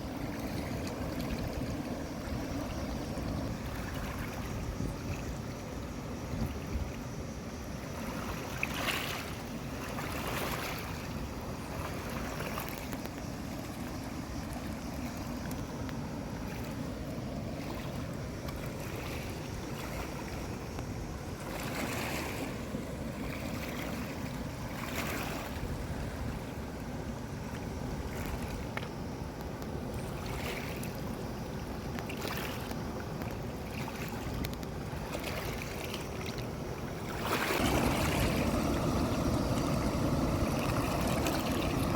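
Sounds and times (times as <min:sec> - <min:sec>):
wind buffeting microphone: 0:00.0 - 0:07.1, 0:37.1 - 0:41.9
stream water flowing: 0:00.0 - 0:41.9.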